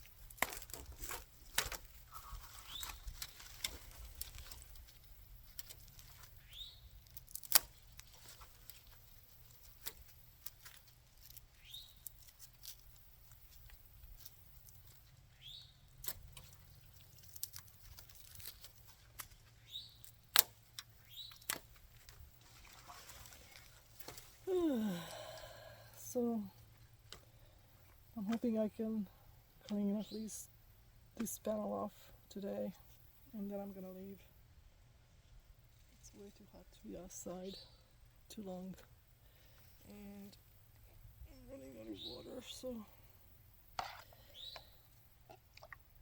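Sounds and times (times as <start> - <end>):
sharp snips and clicks: 7.0 - 8.8, 20.0 - 21.8.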